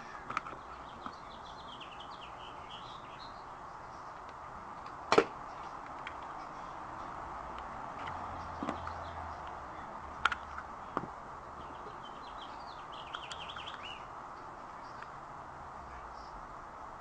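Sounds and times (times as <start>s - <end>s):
bird chirping: 0.0s - 4.8s, 8.1s - 15.2s
steady background noise: 0.0s - 17.0s
sharp clicks: 13.0s - 13.9s.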